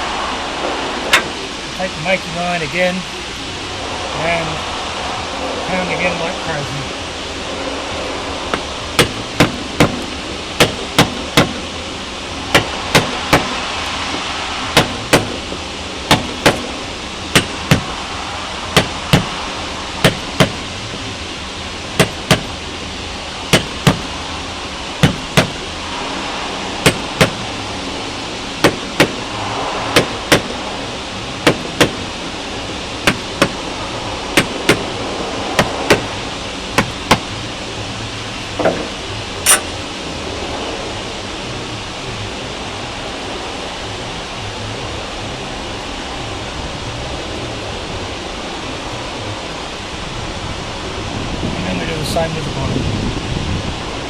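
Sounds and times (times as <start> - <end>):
mallet striking caulking iron: 8.5 - 11.6, 12.5 - 13.7, 14.8 - 15.4, 16.1 - 17.9, 18.8 - 19.3, 20.0 - 20.6, 22.0 - 22.6, 23.5 - 24.2, 25.0 - 25.6, 26.8 - 27.4, 28.6 - 29.3, 30.0 - 30.5, 31.4 - 32.0, 33.0 - 33.6, 34.4 - 34.9, 35.6 - 36.1, 36.8 - 37.3, 39.5 - 39.7.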